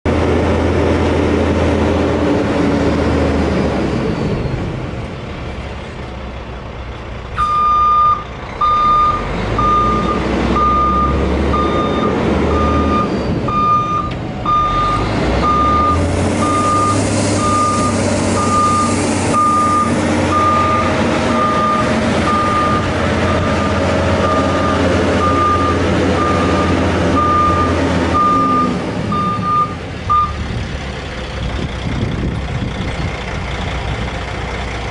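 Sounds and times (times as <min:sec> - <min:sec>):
diesel truck engine running: 0:00.0 - 0:34.9
reversing alarm beeping: 0:07.4 - 0:30.4.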